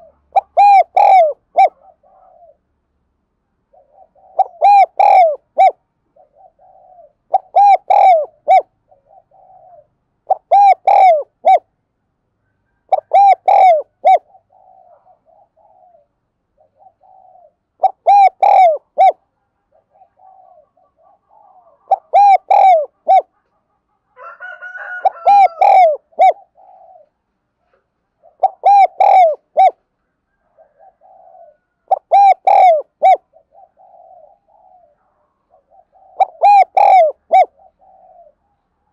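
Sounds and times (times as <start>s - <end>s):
dove cooing: 0.0s - 2.7s, 3.7s - 11.7s, 12.8s - 38.9s
higher bird call: 19.9s - 23.3s, 30.6s - 34.9s.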